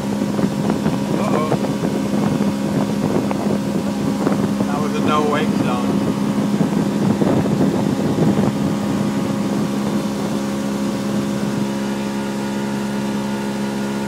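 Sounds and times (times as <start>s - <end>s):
motorboat engine running: 0.0s - 14.0s
rushing water: 0.0s - 14.0s
wind noise: 0.0s - 14.0s.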